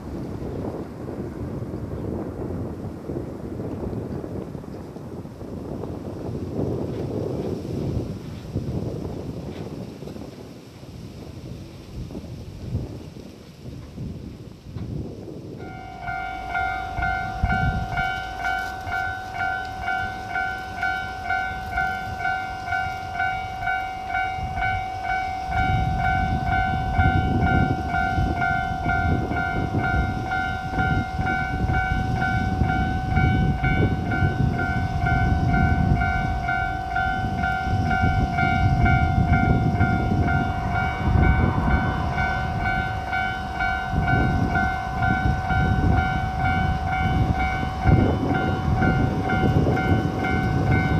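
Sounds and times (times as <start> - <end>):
diesel train passing: 14.8 - 50.9
level crossing alarm ringing: 15.6 - 50.9.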